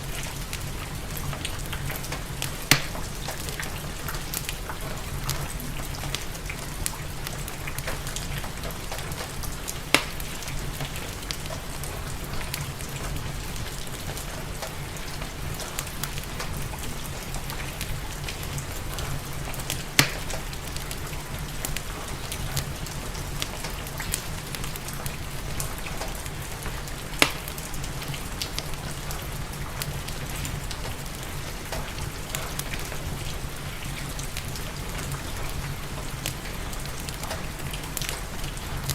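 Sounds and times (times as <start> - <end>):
steady rain falling: 0.0 - 38.9
wood fire crackling: 0.0 - 38.9
loud sharp pops: 2.7 - 3.0, 9.9 - 10.2.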